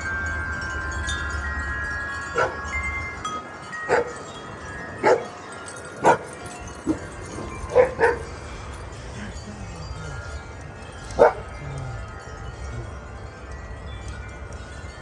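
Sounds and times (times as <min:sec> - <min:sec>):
wind chimes ringing: 0:00.0 - 0:15.0
dog barking: 0:02.4 - 0:02.6, 0:03.9 - 0:04.3, 0:05.0 - 0:05.4, 0:06.0 - 0:06.3, 0:06.9 - 0:08.5, 0:11.1 - 0:11.6.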